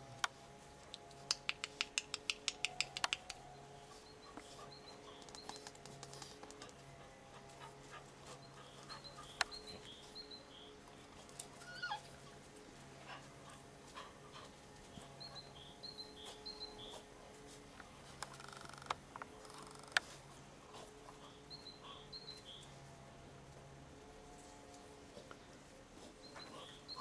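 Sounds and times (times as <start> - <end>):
steady low hum: 0.0 - 27.0
sharp clicks: 0.9 - 3.4
small birds chirping: 1.2 - 6.7, 7.5 - 12.0, 13.4 - 20.2, 21.0 - 22.8, 26.1 - 27.0.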